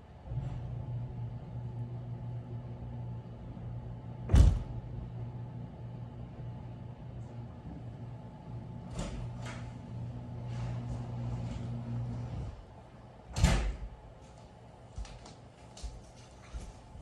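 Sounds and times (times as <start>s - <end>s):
low mechanical hum: 0.0s - 17.0s
loud thump: 4.3s - 4.8s.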